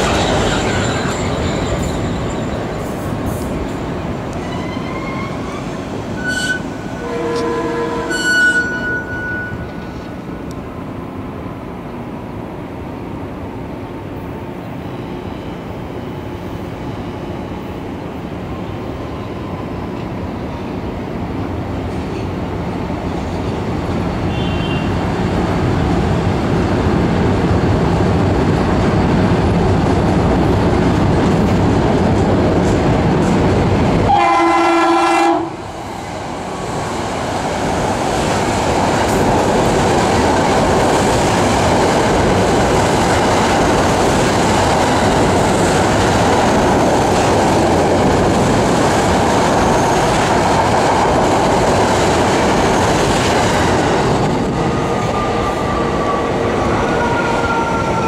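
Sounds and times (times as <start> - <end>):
train cars clickety-clack: 0.0 - 10.6, 21.7 - 58.0
train wheel and rail noise: 0.0 - 58.0
train horn blast: 6.2 - 9.7, 24.3 - 24.9, 34.1 - 35.6.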